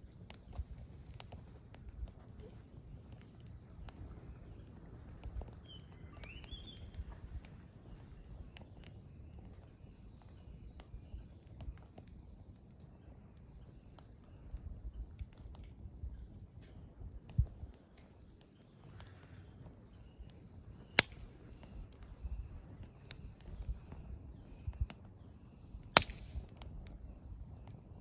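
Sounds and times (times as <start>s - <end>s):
campfire crackling and popping: 0.0s - 28.0s
bird chirp: 3.2s - 12.0s.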